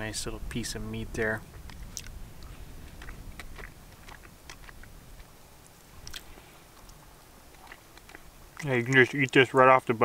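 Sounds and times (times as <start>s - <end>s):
person chewing: 1.5s - 9.0s
mouth clicks and smacks: 1.5s - 9.6s.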